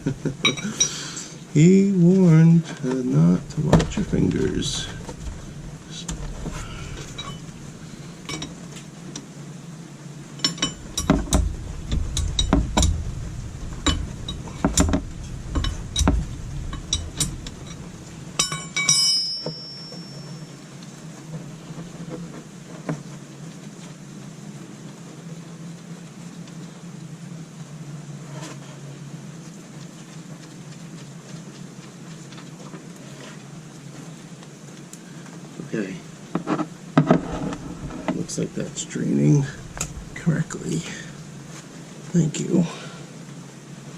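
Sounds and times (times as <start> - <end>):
wrench clinking on metal: 10.4 - 13.0, 18.4 - 20.4.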